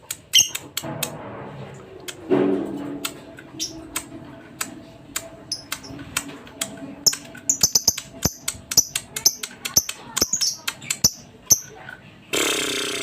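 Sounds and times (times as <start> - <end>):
lovebirds chirping and squawking: 0.3 - 0.6, 3.5 - 3.9, 5.5 - 6.1, 7.0 - 11.8.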